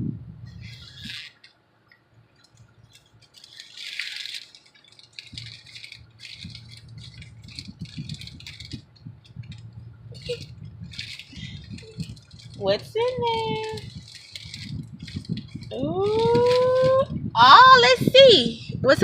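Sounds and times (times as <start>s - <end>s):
backpack rustling and rattling: 2.4s - 17.0s
low hum: 4.4s - 17.4s.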